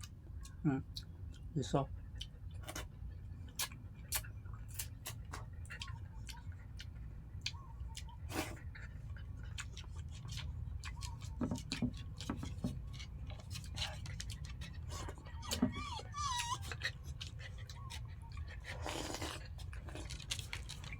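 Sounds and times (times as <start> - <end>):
person eating: 2.2 - 20.9.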